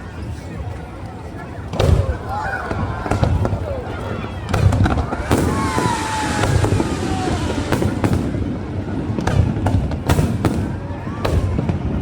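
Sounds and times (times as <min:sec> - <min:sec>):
fireworks bangs: 0:01.7 - 0:12.0
whistling fireworks: 0:01.7 - 0:12.0.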